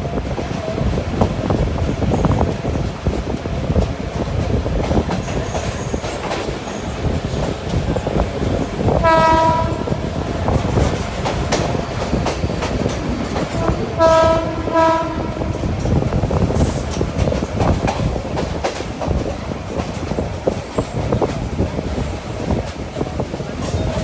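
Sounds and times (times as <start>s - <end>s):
train rumble and wheel clatter: 0.0s - 24.0s
train horn: 8.8s - 10.3s, 13.4s - 15.8s.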